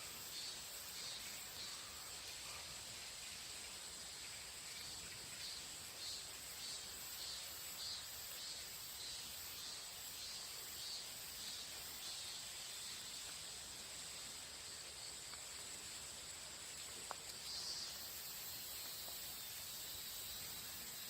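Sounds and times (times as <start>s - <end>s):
insect chirps: 0.0s - 21.0s
insect high trill: 17.3s - 21.0s.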